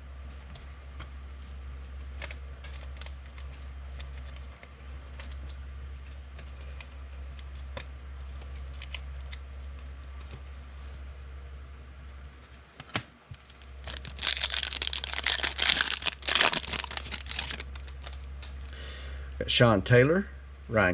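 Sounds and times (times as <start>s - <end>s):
trading cards being handled: 13.4s - 18.6s.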